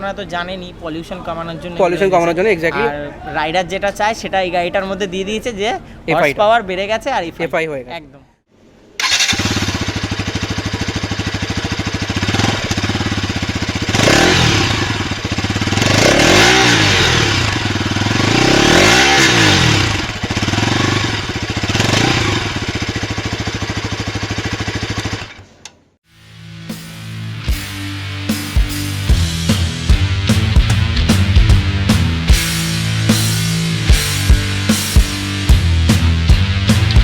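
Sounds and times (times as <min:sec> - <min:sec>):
motorcycle engine idling: 0:09.0 - 0:18.3, 0:19.5 - 0:25.4
engine revving: 0:09.0 - 0:25.3.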